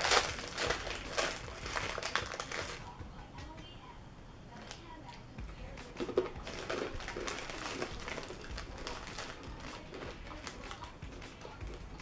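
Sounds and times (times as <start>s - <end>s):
crackers crunching: 0.0s - 2.9s, 5.8s - 12.0s.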